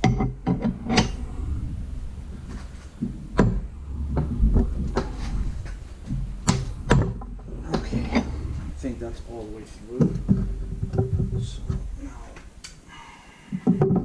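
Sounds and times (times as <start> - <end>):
metal clicks and knocks: 0.0 - 1.2, 3.0 - 8.7, 9.9 - 12.8, 13.5 - 14.0
steady low hum: 0.0 - 14.0.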